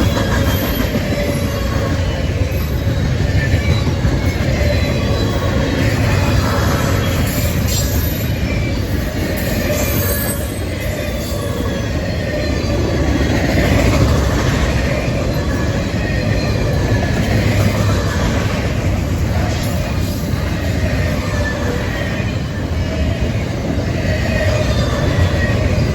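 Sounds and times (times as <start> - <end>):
high-pitched wheel squeal: 0.0 - 14.2
freight train wheels rumbling: 0.0 - 25.9.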